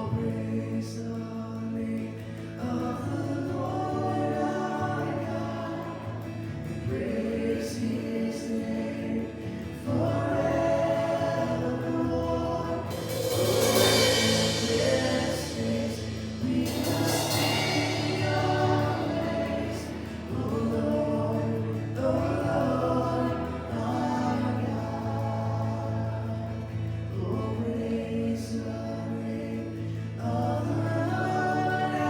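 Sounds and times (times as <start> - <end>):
voices singing: 0.0 - 32.0
band playing worship song: 2.6 - 32.0
cymbal swell: 12.9 - 20.5.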